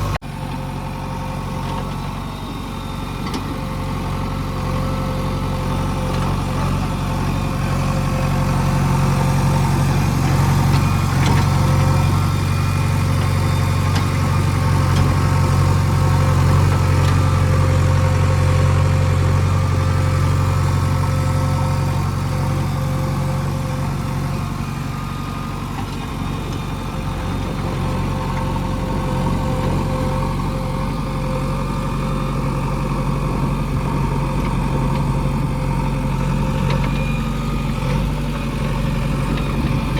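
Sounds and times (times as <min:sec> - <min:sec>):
heavy machinery diesel engine: 0:00.0 - 0:39.9.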